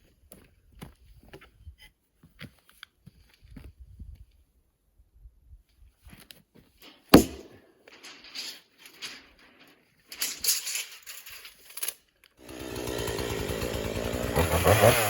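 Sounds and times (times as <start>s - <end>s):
rustling and scraping handling noises: 6.0s - 12.2s
sharp knock: 7.2s - 7.6s.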